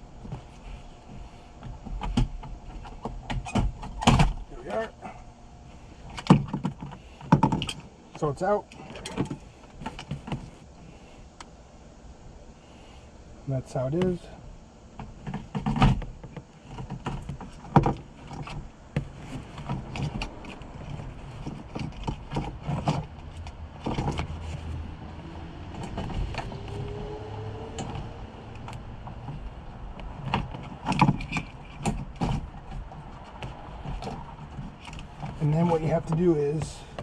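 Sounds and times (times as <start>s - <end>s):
low steady rumble: 0.0s - 37.0s
fuel pump parts clicking and rattling: 5.8s - 11.5s, 14.1s - 24.8s, 27.7s - 37.0s.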